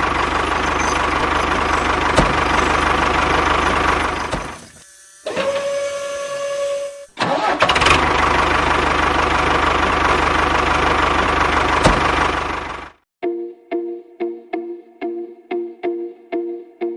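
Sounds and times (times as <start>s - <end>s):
tractor engine starting: 0.0s - 13.0s.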